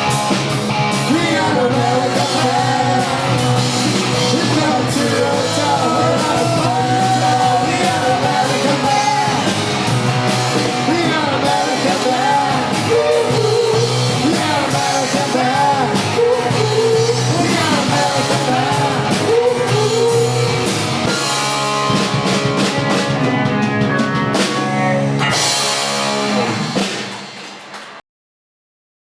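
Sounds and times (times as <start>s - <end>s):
bass guitar: 0.0s - 27.4s
electric guitars: 0.0s - 27.7s
drum kit: 0.0s - 28.0s
person singing: 0.9s - 21.2s.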